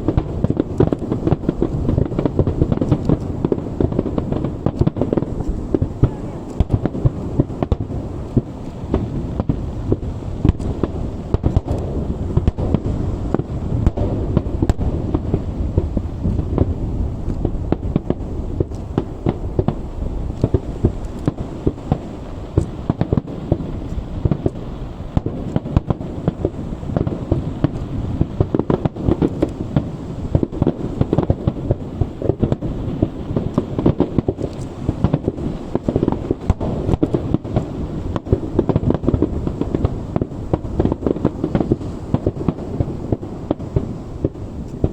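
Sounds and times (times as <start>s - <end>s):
fireworks barrage of bangs: 0.0s - 44.9s.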